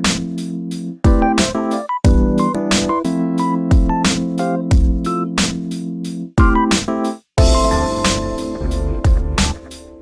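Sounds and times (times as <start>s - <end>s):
synthesizer and electric piano chords: 0.0s - 10.0s
steady drum beat: 0.1s - 2.5s, 3.7s - 5.8s, 6.4s - 9.9s.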